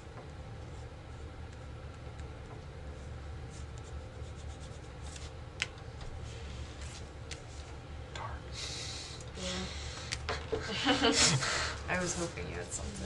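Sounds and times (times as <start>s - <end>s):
steady low hum: 0.0s - 13.0s
playing cards laid and slid: 6.3s - 7.7s.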